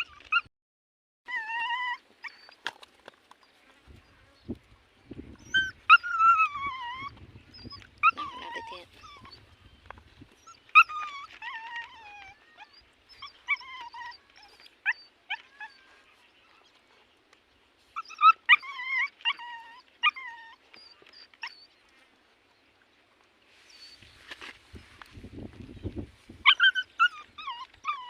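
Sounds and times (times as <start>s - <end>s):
dog whimpering and whining: 0.0s - 0.5s, 1.3s - 2.6s, 5.4s - 9.5s, 10.4s - 16.1s, 18.0s - 21.8s, 26.4s - 28.0s.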